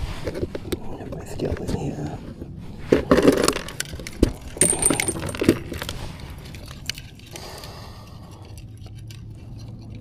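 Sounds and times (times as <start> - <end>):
rustling scrape: 0.0 - 0.7
small hard items clinking: 3.1 - 7.3.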